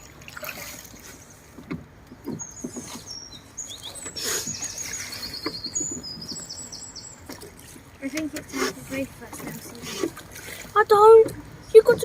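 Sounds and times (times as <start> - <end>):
small bird chirping: 2.3 - 7.3.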